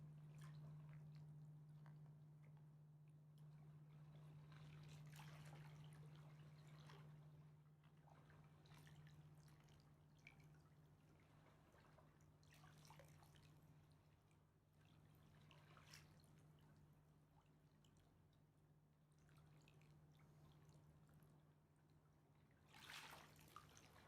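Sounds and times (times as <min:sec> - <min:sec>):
steady low hum: 0:00.0 - 0:08.4
faint river water lapping: 0:00.0 - 0:24.0.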